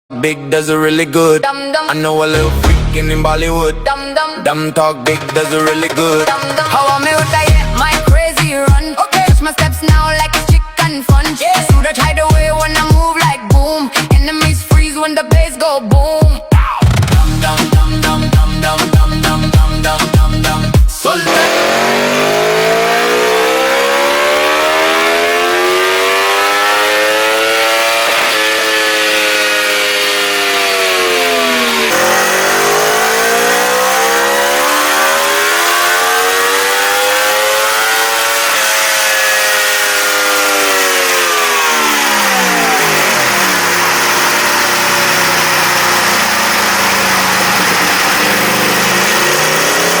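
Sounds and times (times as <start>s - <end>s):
motorcycle engine revving on dyno: 21.2s - 50.0s.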